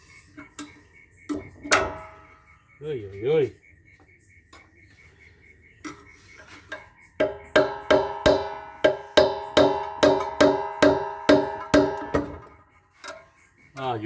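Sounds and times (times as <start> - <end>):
hammer blows on metal: 7.2 - 12.5.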